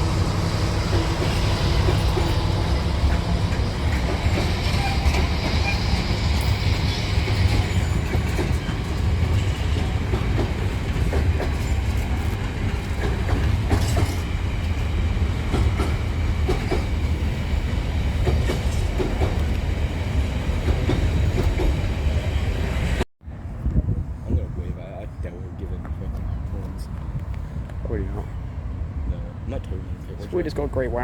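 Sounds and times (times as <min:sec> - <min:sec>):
train rumbling past: 0:00.0 - 0:31.0
wheels clicking over rail joints: 0:00.8 - 0:19.7.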